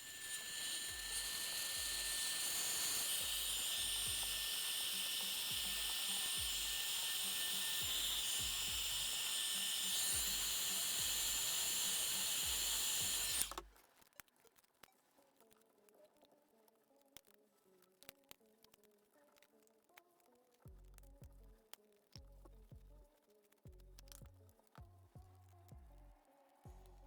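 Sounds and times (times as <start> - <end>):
power tool whining: 0.0 - 13.7
small clicks: 0.4 - 24.9.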